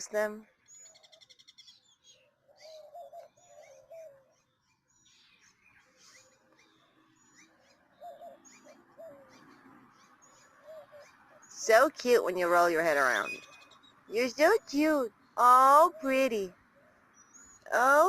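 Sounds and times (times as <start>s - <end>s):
wild birds chirping: 0.0s - 18.0s.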